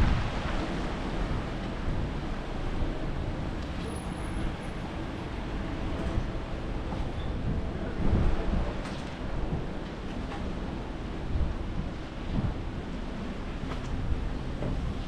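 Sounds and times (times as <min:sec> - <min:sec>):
strong storm wind rushing: 0:00.0 - 0:03.6, 0:04.4 - 0:09.7, 0:11.2 - 0:13.0.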